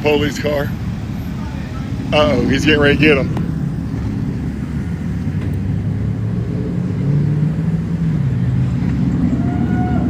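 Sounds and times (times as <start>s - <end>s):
vehicle engines rumbling: 0.0s - 10.0s.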